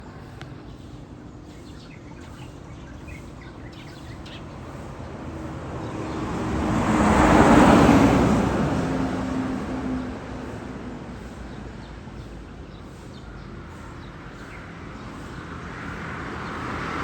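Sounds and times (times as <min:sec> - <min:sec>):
birds chirping: 0:00.0 - 0:08.0
motor vehicle passing: 0:04.3 - 0:11.2.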